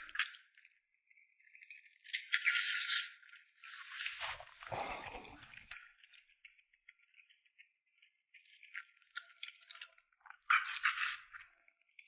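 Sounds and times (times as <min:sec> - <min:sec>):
close-miked chewing: 0:04.6 - 0:12.0.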